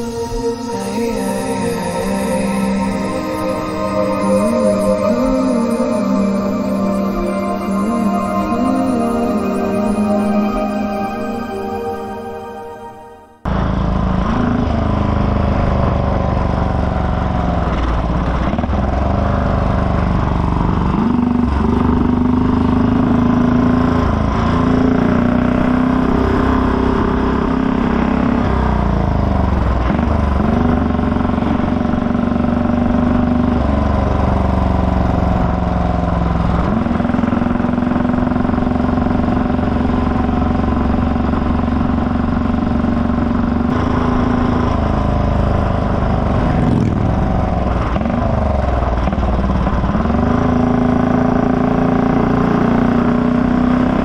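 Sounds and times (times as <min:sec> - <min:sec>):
motorcycle engine running: 0:13.5 - 0:54.0.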